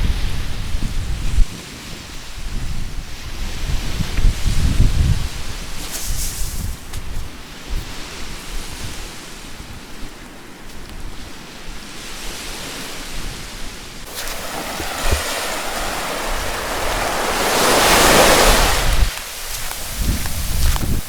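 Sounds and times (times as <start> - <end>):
wind rumbling on microphone: 0.0 - 21.0
sea waves washing onto beach: 11.8 - 21.0.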